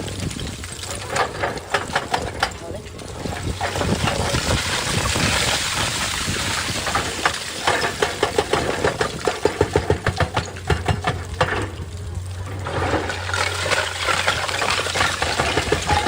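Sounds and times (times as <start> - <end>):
excavator diesel engine running: 0.0 - 16.0
regular knocks: 6.8 - 16.0.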